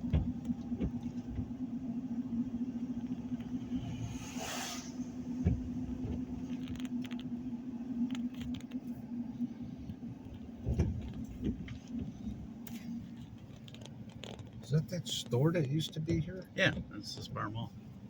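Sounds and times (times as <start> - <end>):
light rattles and clicks: 0.0 - 1.6, 5.4 - 17.6
car engine and road hum: 0.0 - 18.0
low bumps: 0.0 - 18.0.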